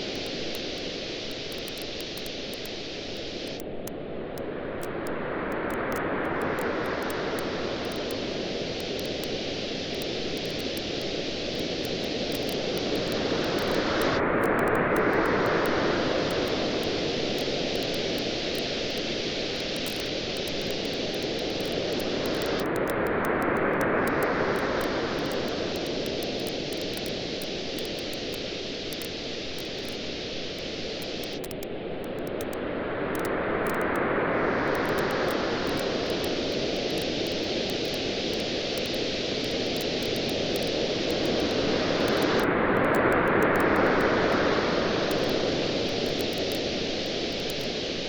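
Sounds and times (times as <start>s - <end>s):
ocean waves washing ashore: 4.5s - 48.0s
campfire crackling: 6.4s - 23.0s, 23.8s - 32.6s, 34.7s - 42.5s.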